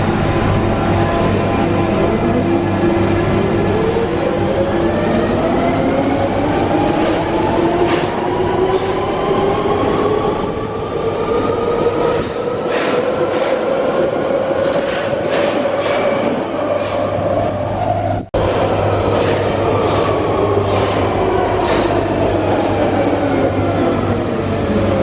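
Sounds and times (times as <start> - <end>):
wheels clacking on track: 14.6 - 17.9.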